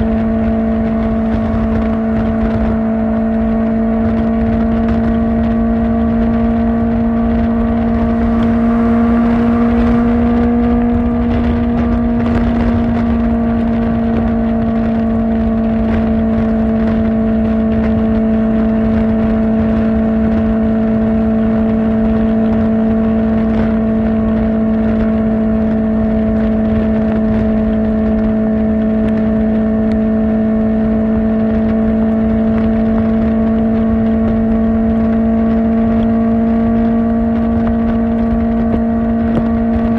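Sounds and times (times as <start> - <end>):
motorcycle engine at high revs: 0.0 - 39.9
wind rush: 0.0 - 39.9.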